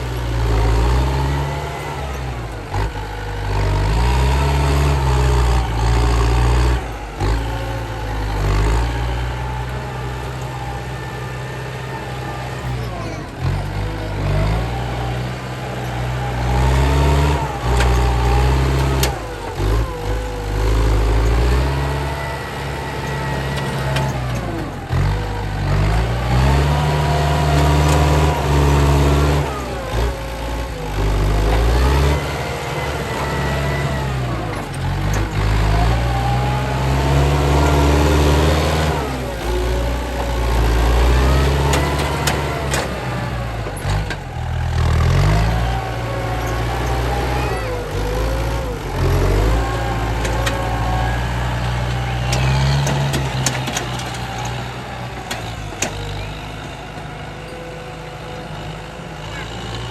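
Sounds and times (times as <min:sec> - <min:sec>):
heavy diesel engine revving: 0:00.0 - 0:59.9.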